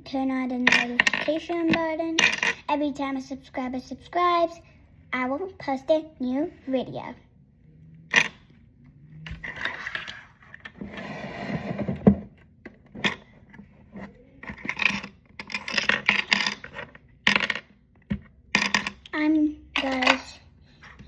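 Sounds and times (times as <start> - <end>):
plastic items clinking and scraping: 12.9 - 17.6.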